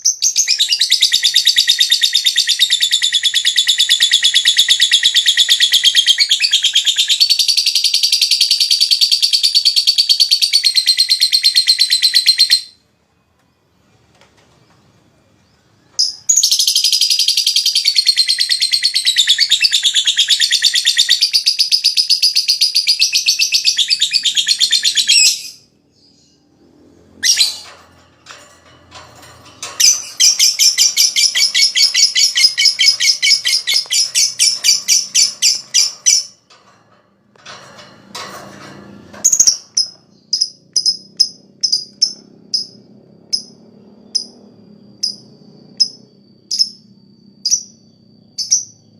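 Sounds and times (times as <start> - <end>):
bird chirps: 0.0 - 12.8, 15.4 - 36.4, 39.2 - 48.9
bird chattering trill: 29.6 - 36.4.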